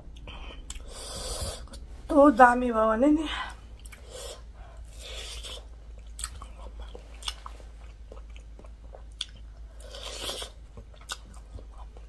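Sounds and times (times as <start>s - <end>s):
chewing with mouth clicks: 3.8s - 12.0s.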